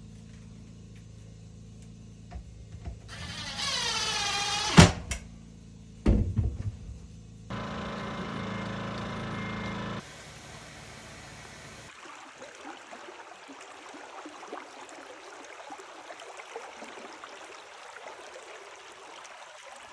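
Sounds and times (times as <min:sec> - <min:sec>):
stream water flowing: 0:07.5 - 0:19.9.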